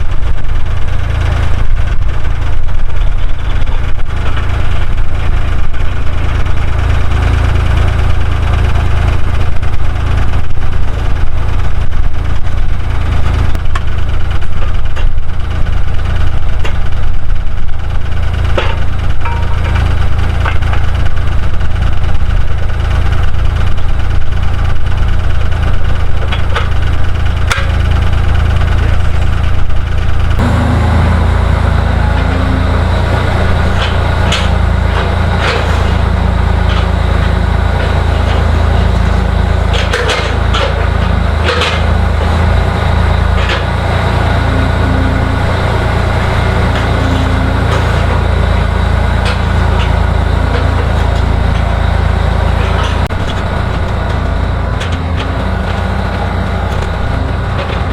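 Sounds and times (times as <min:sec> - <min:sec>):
skid steer engine running: 0:00.0 - 0:57.9
metal clanks and knocks: 0:18.4 - 0:21.2, 0:25.8 - 0:57.9.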